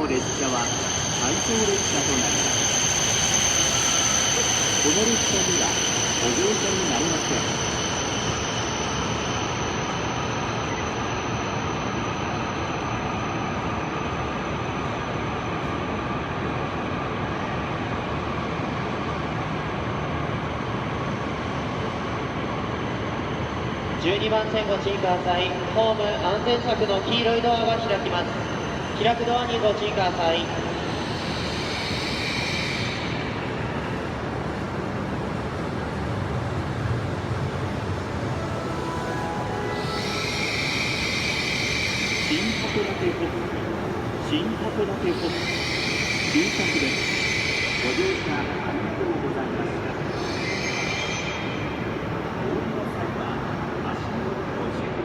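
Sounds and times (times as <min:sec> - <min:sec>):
thin high steady tone: 0:00.0 - 0:12.9, 0:37.7 - 0:46.9
train arriving rushing noise: 0:00.0 - 0:55.0
high hiss: 0:38.0 - 0:49.2.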